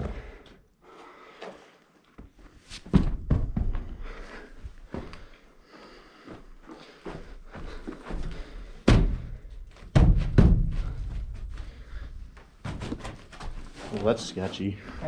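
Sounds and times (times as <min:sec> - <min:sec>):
footsteps on cave floor: 0:00.0 - 0:09.9, 0:10.7 - 0:15.0
heavy thud: 0:08.8 - 0:11.5.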